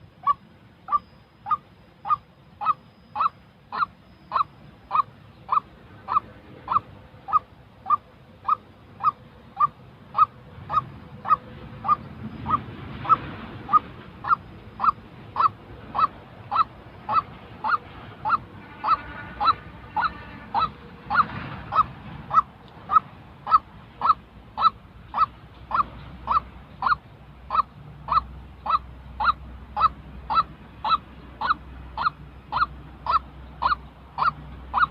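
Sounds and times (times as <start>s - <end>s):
bird honking calls: 0.0s - 34.9s.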